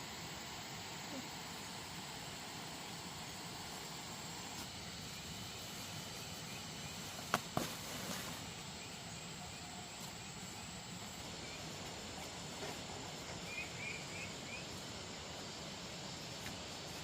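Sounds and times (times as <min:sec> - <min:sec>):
outdoor background hiss: 0:00.0 - 0:17.0
faint bird chirps: 0:13.2 - 0:14.8.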